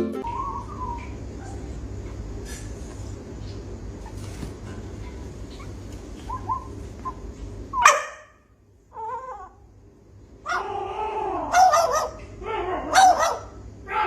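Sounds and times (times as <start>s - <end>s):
dog barking: 7.8s - 8.4s, 11.4s - 14.0s
dog whining: 8.9s - 9.6s, 10.4s - 14.0s.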